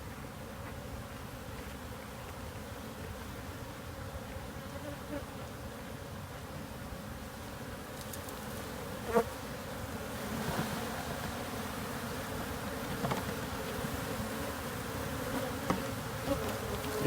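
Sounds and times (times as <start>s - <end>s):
honey bees buzzing: 6.6s - 17.0s.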